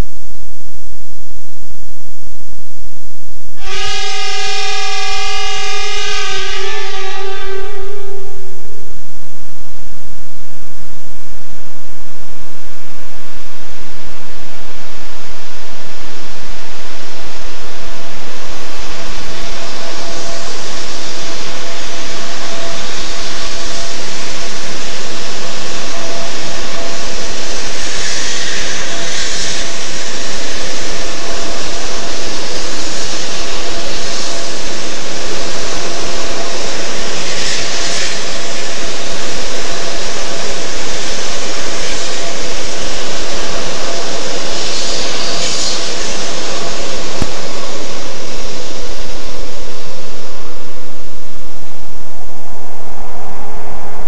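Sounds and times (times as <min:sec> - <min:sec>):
faint steady tone: 0:00.0 - 0:54.0
train rushing at speed: 0:03.6 - 0:08.6.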